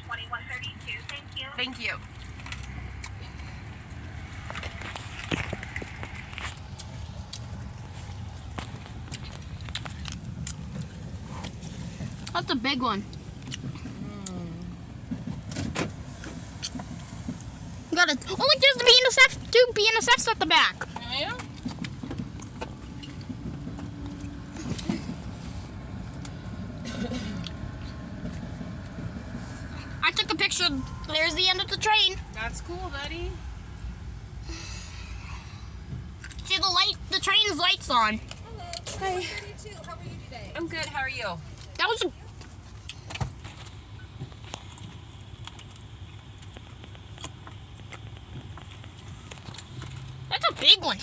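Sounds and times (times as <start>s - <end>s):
car idling: 0.0s - 51.0s
freight train rumbling past: 23.2s - 34.4s.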